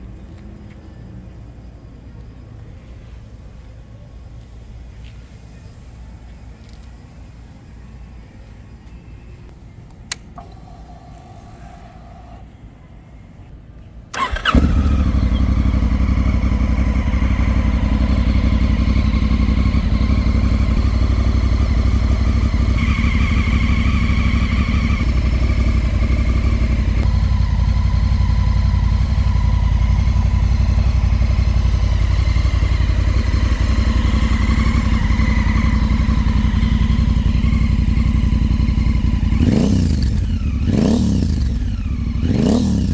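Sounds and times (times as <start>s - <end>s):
click: 9.8s - 11.0s, 14.2s - 14.6s
motorcycle engine idling: 14.1s - 42.9s.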